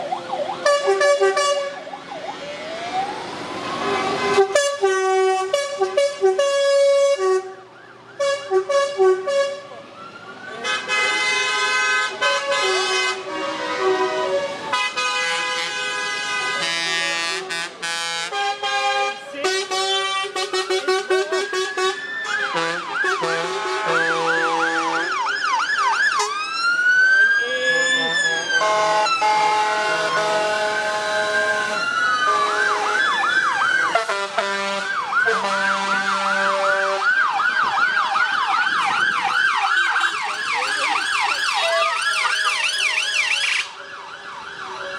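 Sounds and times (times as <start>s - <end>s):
emergency vehicle siren: 0.0s - 44.9s
lorry air horns blaring: 0.6s - 1.8s, 4.1s - 7.6s, 8.2s - 9.7s, 10.6s - 25.2s, 28.5s - 33.3s, 33.9s - 37.2s.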